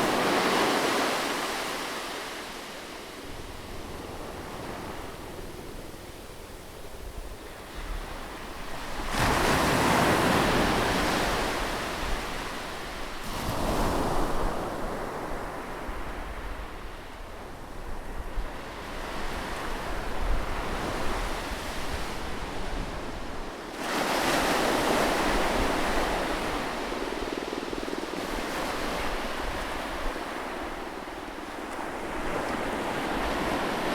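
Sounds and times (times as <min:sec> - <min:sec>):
sea waves breaking on shore: 0:00.0 - 0:15.2.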